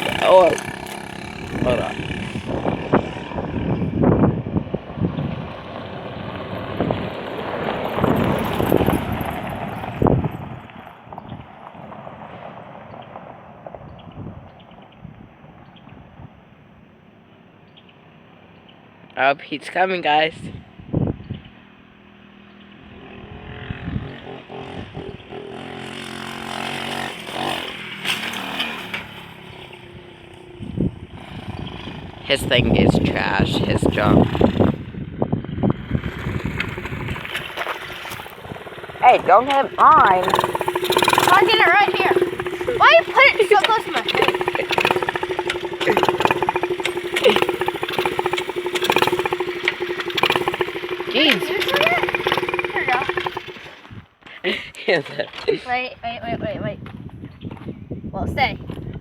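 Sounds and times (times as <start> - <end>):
dirt bike engine running: 0.0 - 4.7, 6.8 - 10.4, 23.2 - 53.9
wind buffeting microphone: 0.0 - 11.5, 30.6 - 54.0, 56.2 - 59.0.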